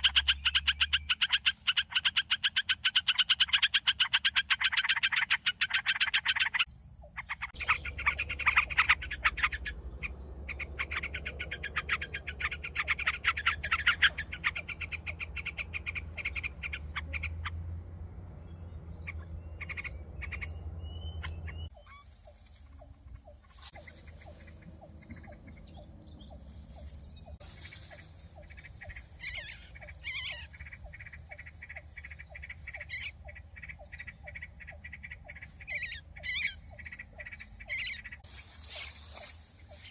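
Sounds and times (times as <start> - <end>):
rattling croak-like animal calls: 0.0 - 39.9.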